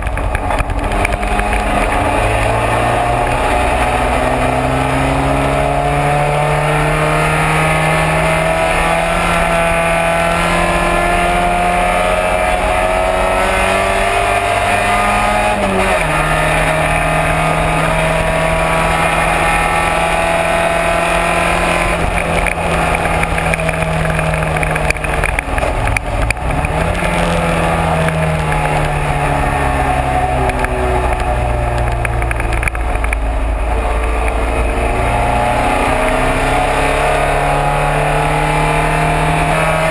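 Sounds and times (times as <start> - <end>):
race car engine under load: 0.0 - 39.9.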